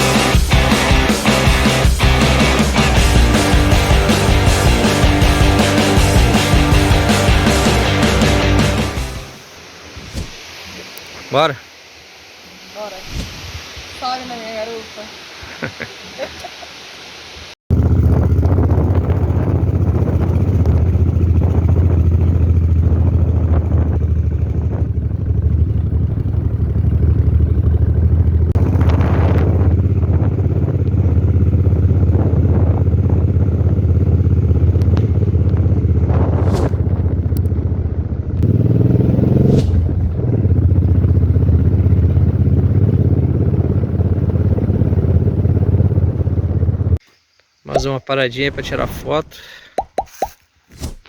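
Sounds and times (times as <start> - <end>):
motorcycle engine running: 0.0 - 9.4, 17.7 - 47.0.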